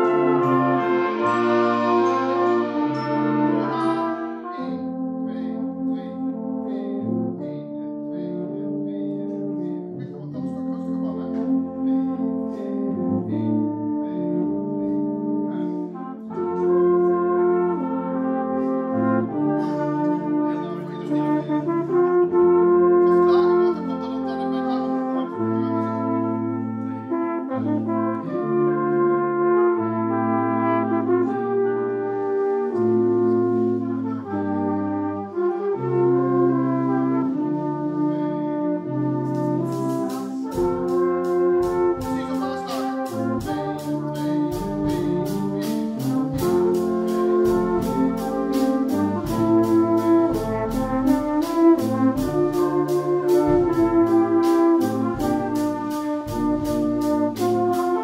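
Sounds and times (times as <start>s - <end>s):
brass ensemble playing chords: 0.0s - 58.0s
percussion strokes: 39.2s - 58.0s.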